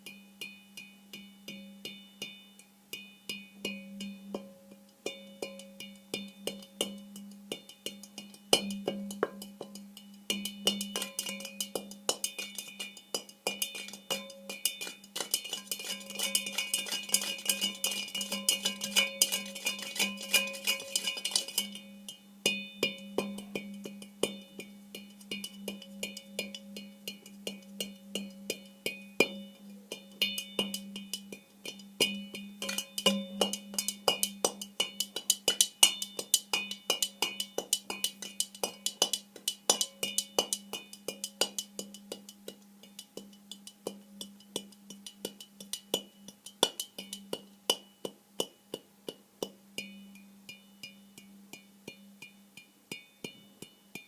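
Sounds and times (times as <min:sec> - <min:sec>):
metal pan lid tapping and ringing: 0:08.5 - 0:21.8, 0:25.3 - 0:41.9.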